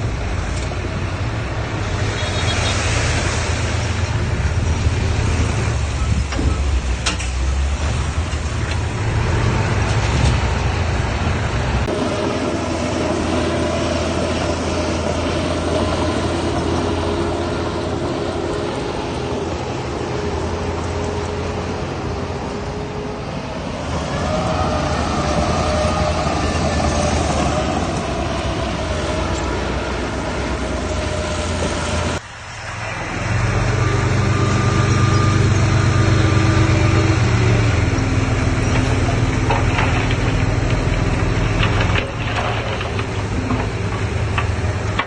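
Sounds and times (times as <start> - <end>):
heavy diesel engine rumble: 0.0 - 45.0
machinery whine: 11.9 - 45.0.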